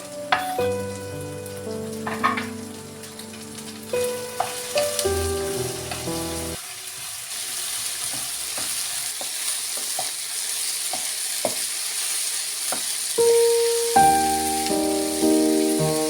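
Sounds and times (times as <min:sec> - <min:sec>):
piano music: 0:00.0 - 0:06.6, 0:13.2 - 0:16.0
food sizzling in a frying pan: 0:00.0 - 0:16.0.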